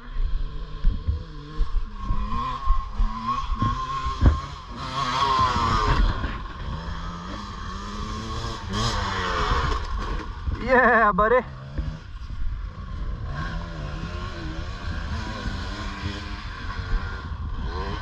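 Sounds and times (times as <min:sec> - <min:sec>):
dirt bike engines revving: 0:00.0 - 0:18.0
sharp thump: 0:03.5 - 0:04.6.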